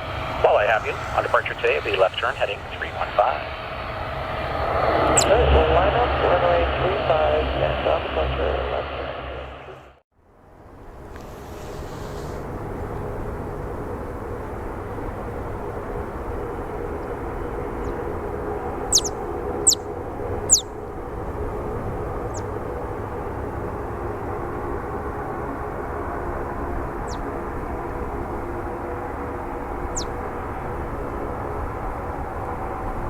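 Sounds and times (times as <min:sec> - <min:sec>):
airliner engines running: 0:00.0 - 0:33.0
high bird chirps: 0:18.9 - 0:19.8, 0:20.4 - 0:20.7, 0:27.0 - 0:27.3, 0:29.9 - 0:30.2.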